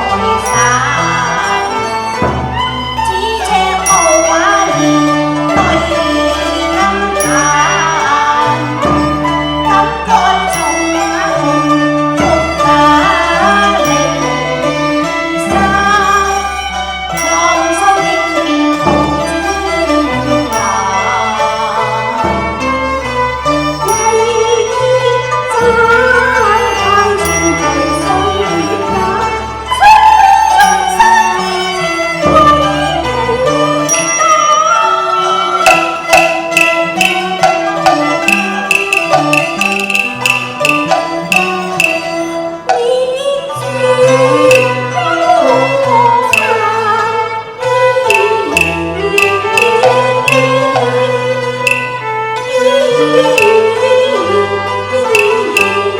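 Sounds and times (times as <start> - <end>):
traditional ensemble with bowed strings: 0.0 - 55.9
sharp percussion strikes: 3.8 - 9.7, 26.8 - 28.7, 35.3 - 42.4, 44.4 - 45.0, 46.2 - 46.8, 48.1 - 52.2, 53.2 - 53.8, 55.1 - 55.9.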